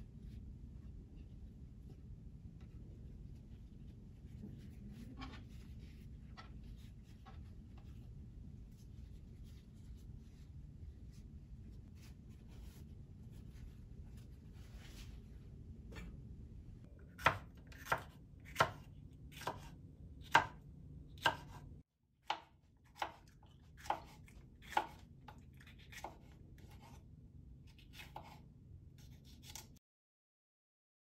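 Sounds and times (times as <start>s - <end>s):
knife chopping on cutting board: 17.0s - 20.6s, 21.2s - 21.7s, 22.3s - 27.0s, 27.7s - 28.4s, 29.0s - 29.7s.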